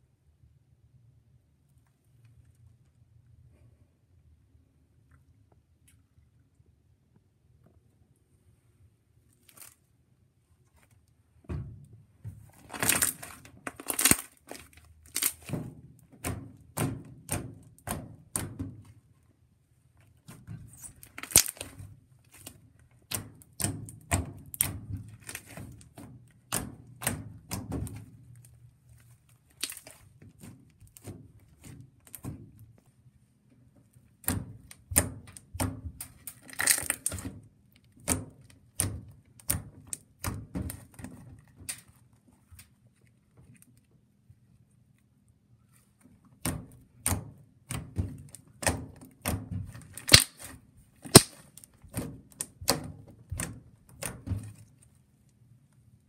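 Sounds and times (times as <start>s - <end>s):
wet slime clicks and pops: 50.1s - 50.5s, 51.1s - 51.4s.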